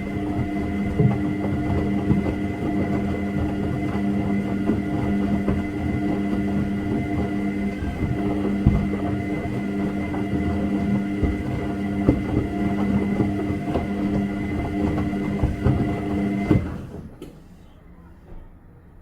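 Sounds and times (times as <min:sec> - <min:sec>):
washing machine motor hum: 0:00.0 - 0:17.4.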